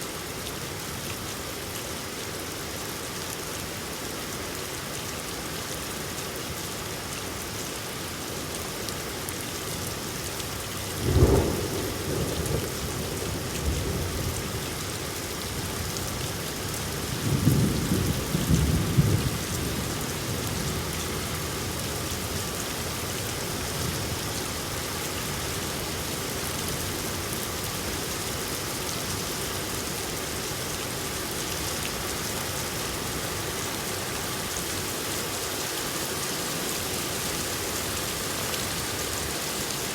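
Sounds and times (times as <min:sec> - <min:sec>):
steady rain falling: 0:00.0 - 0:39.9
thunder rumbling: 0:11.0 - 0:14.4.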